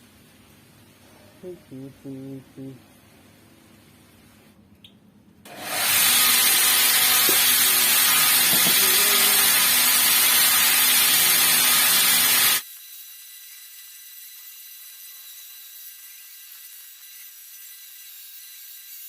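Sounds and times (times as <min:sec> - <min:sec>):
power tool hissing: 0:05.5 - 0:12.9.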